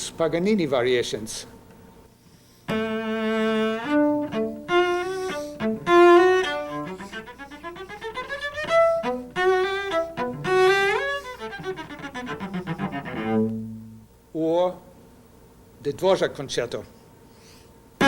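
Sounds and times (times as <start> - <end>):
cello playing staccato: 2.7 - 14.0.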